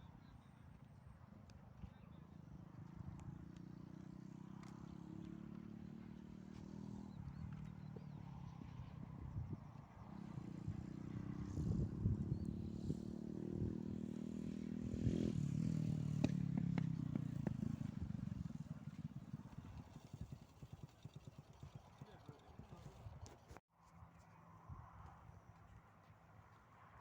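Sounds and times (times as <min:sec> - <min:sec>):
vehicle engine passing by: 0:04.3 - 0:22.6.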